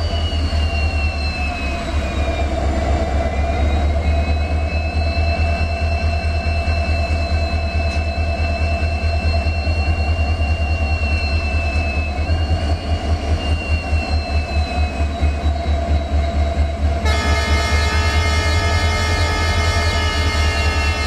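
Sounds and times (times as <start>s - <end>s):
train rumbling: 0.0s - 21.0s
locomotive horn chord: 17.0s - 21.0s.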